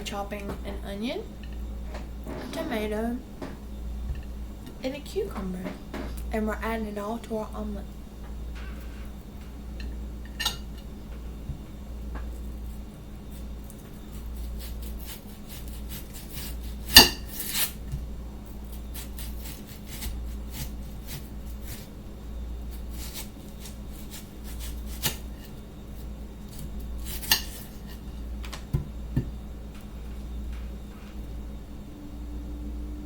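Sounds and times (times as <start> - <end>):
low hum: 25.6 - 33.0.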